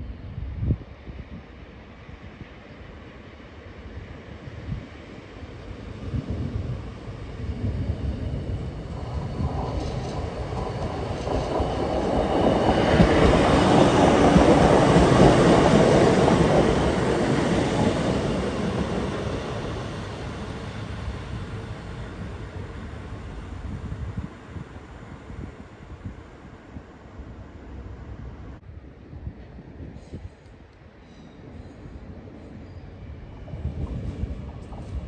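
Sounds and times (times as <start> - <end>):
diesel train passing: 1.1 - 28.6.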